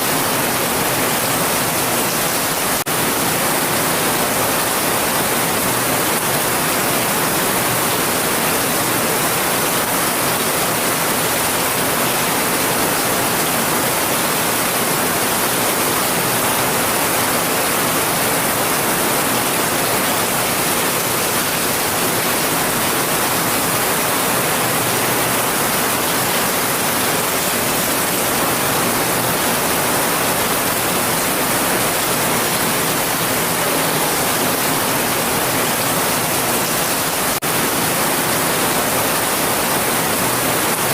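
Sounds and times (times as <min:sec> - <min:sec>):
steady dense rain: 0:00.0 - 0:40.9.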